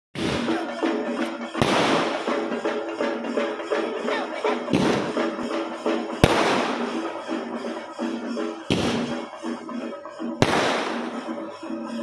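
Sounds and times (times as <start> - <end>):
fireworks bursting with bangs: 0.2 - 2.6, 4.7 - 5.4, 6.1 - 7.2, 8.7 - 9.4, 10.4 - 11.5
music playing: 0.2 - 12.0.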